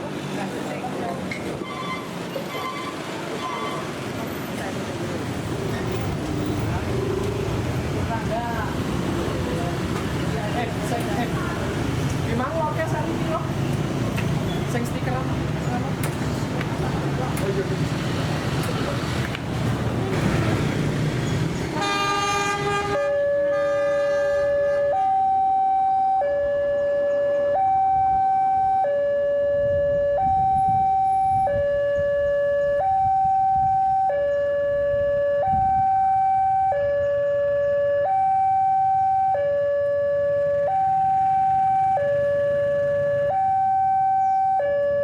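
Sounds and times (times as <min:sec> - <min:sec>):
passing traffic rumble: 0:00.0 - 0:45.0
horn-like tone: 0:01.6 - 0:03.9, 0:21.8 - 0:25.2
two-tone level crossing alarm: 0:24.5 - 0:45.0.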